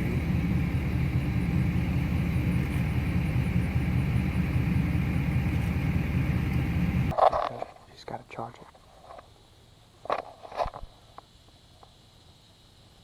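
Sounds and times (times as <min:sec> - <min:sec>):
vehicle engine rumble: 0:00.0 - 0:07.1.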